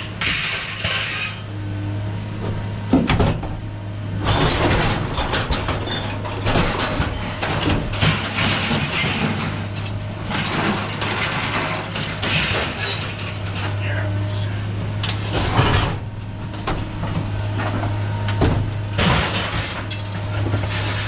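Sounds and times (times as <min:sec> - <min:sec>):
clattering and rattling: 0:00.2 - 0:01.4, 0:04.2 - 0:13.8, 0:15.0 - 0:21.0
steady low hum: 0:12.4 - 0:20.7.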